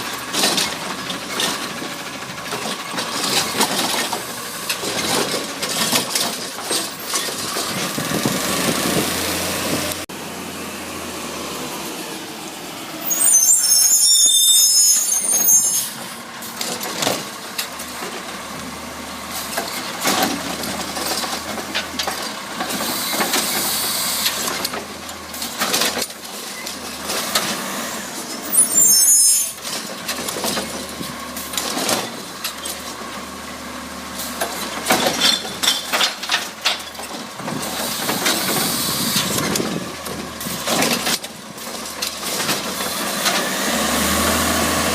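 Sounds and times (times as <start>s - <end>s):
garbage truck running: 0.0s - 44.9s.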